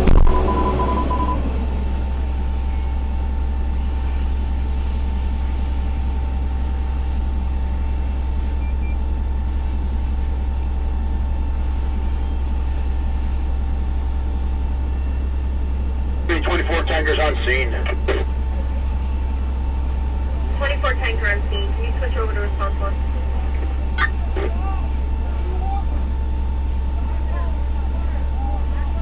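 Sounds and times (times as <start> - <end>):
fire engine running: 0.0 - 8.5, 12.7 - 29.0.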